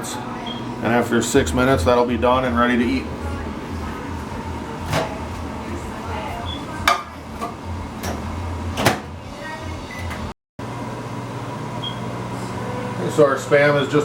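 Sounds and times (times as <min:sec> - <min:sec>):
microwave electrical hum: 0:00.0 - 0:14.0.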